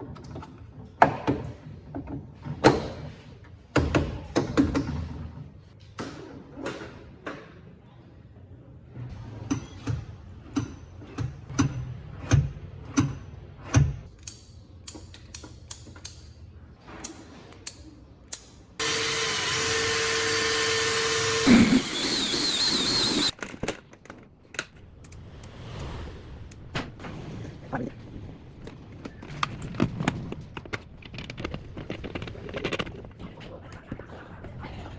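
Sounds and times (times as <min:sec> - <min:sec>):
power tool running: 0:18.8 - 0:23.3.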